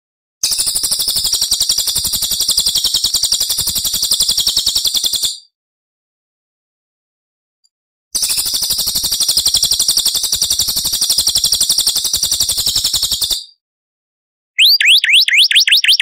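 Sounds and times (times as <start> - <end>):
songbird trilling: 14.6 - 16.0.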